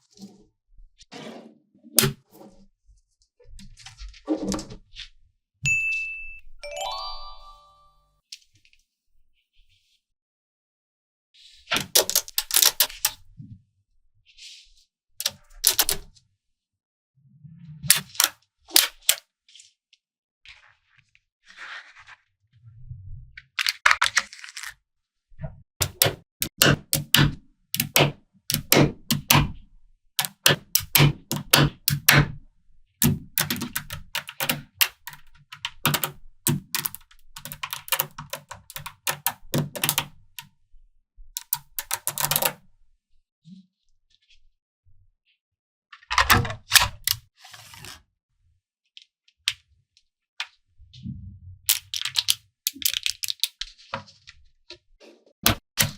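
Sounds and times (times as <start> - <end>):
magnetic balls clicking together: 30.2 - 32.2, 33.4 - 40.1, 41.4 - 42.5.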